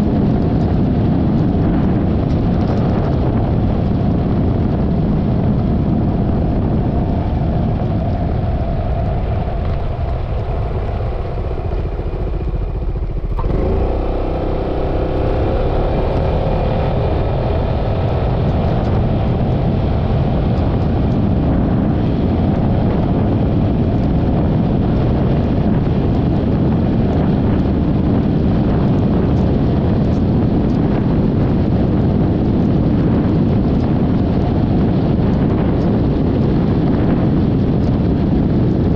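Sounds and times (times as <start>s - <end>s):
wind and road noise: 0.0s - 38.9s
scooter engine: 11.4s - 19.8s.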